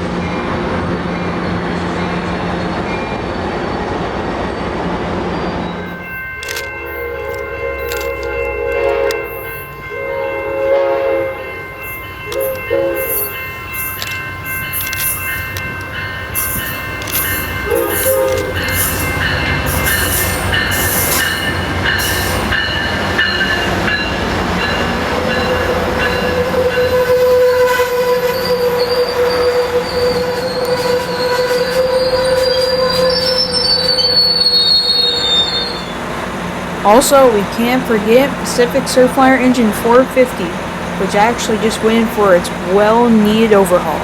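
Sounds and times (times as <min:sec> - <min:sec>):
train wheels rumbling and rattling: 0:00.0 - 0:44.0
train horn blasts: 0:06.8 - 0:11.7, 0:12.3 - 0:13.4, 0:17.5 - 0:19.1, 0:25.5 - 0:36.0
high wheel squeal: 0:26.2 - 0:36.0.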